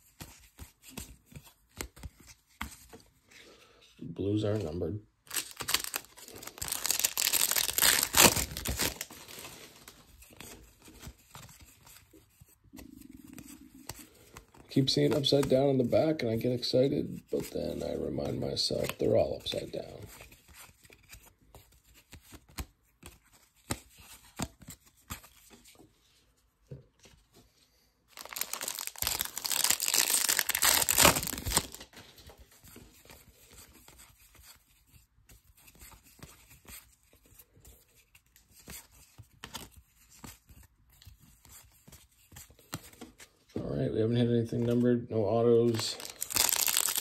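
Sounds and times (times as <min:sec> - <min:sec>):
cards clicking and rustling: 0:00.0 - 0:03.2, 0:05.3 - 0:15.7, 0:17.3 - 0:25.9, 0:28.1 - 0:43.4, 0:45.6 - 0:47.0
plastic wrapper tearing and crinkling: 0:05.2 - 0:10.0, 0:28.1 - 0:32.0, 0:45.7 - 0:47.0.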